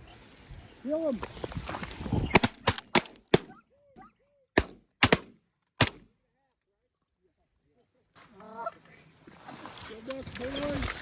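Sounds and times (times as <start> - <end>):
shotgun shots: 2.3 - 3.6, 4.6 - 6.1.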